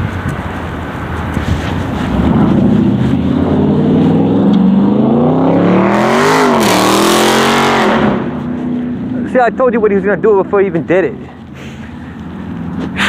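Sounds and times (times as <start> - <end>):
loud car exhaust accelerating: 0.0 - 9.6.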